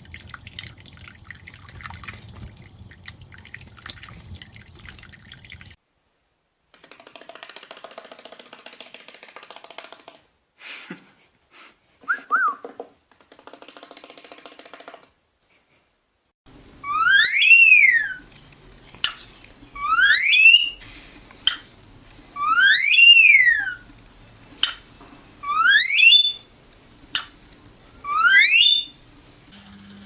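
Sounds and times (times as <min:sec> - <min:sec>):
parrot whistled call: 0:16.8 - 0:18.2, 0:19.8 - 0:20.8, 0:22.4 - 0:23.8, 0:25.4 - 0:26.4, 0:28.0 - 0:29.0
sharp clicks: 0:18.0 - 0:29.5.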